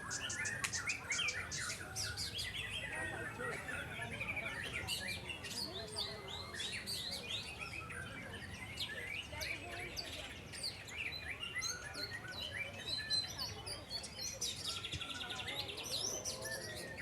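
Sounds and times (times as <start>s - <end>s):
bird singing fast varied song: 0.0s - 3.1s.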